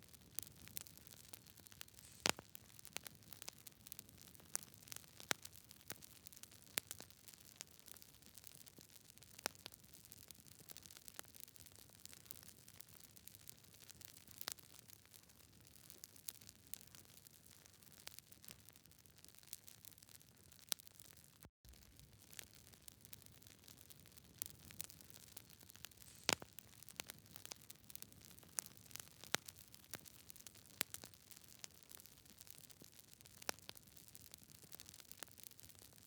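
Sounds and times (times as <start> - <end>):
wood fire crackling: 0.0 - 36.0
faint hiss: 1.9 - 2.4, 25.9 - 26.5.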